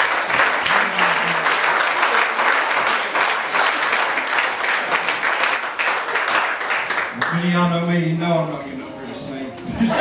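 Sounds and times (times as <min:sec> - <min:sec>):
congregation applauding: 0:00.0 - 0:07.6.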